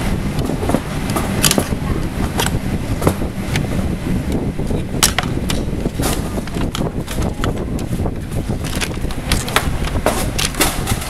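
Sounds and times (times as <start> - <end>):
steady low rumble: 0.0 - 11.0
metal tools clicking and knocking: 8.6 - 11.0.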